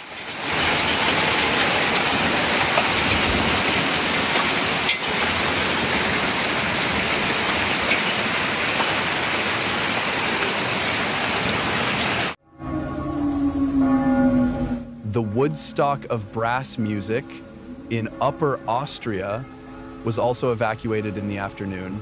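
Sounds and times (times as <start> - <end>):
heavy rain pouring: 0.0 - 12.4, 15.1 - 19.4.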